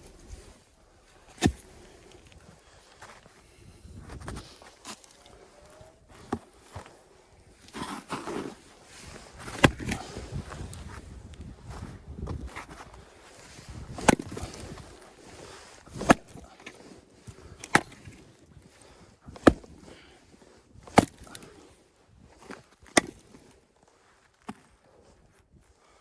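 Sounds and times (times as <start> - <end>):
axe chopping firewood: 1.2 - 2.4, 9.4 - 10.4, 13.8 - 15.0, 15.9 - 18.4, 19.3 - 20.1, 20.8 - 21.6, 22.4 - 23.5.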